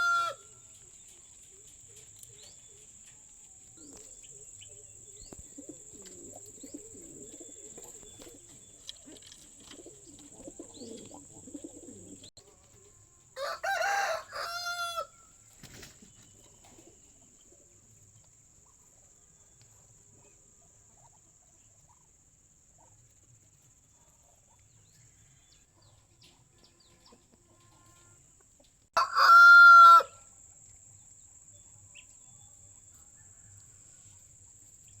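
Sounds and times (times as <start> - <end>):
rooster crowing: 0.0 - 0.6, 13.4 - 15.3, 29.0 - 30.2.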